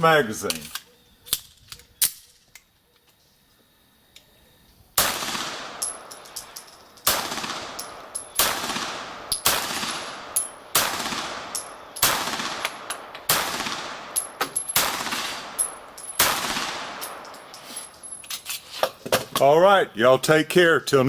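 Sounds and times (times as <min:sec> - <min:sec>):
pistol shots echoing: 0:05.0 - 0:17.5.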